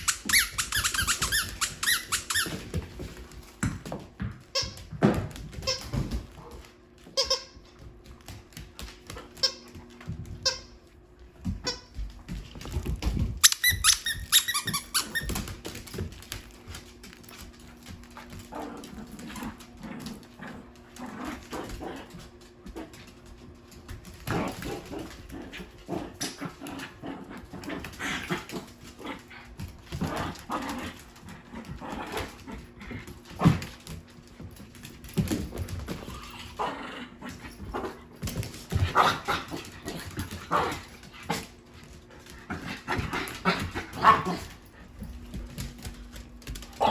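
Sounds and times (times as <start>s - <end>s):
high-pitched squeak: 0.0s - 2.6s, 13.4s - 15.4s
dogs playing: 0.0s - 46.9s.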